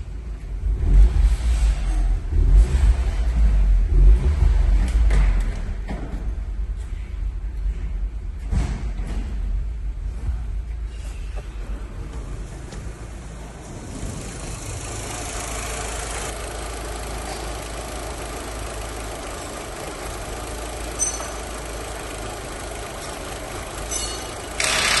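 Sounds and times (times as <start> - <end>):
car engine idling: 12.2 - 25.0.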